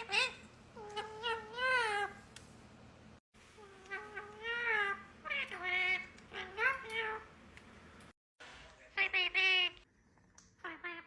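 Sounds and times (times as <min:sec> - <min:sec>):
parakeet calls: 0:00.0 - 0:02.1.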